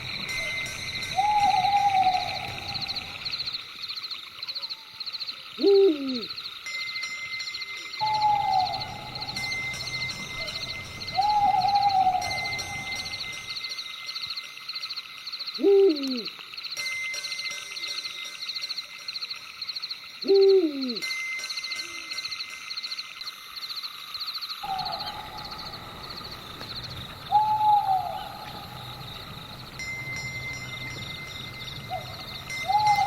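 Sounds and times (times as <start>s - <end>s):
pulsing night chorus: 0.0s - 33.0s
owl hooting: 0.3s - 3.5s, 5.6s - 6.4s, 8.0s - 13.4s, 15.6s - 16.4s, 20.2s - 21.0s, 24.6s - 29.7s, 31.6s - 33.0s.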